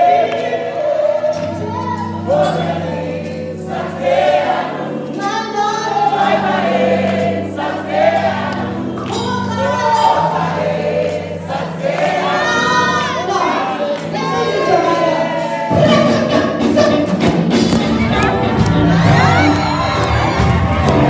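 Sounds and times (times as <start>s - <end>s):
voices singing with vibrato: 0.0s - 21.0s
held low accompaniment notes: 15.7s - 21.0s.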